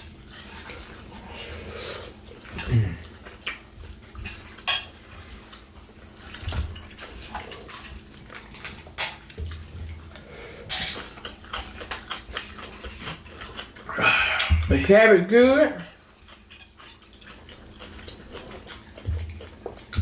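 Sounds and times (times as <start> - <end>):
cutlery clinking on dishes: 4.3 - 5.0.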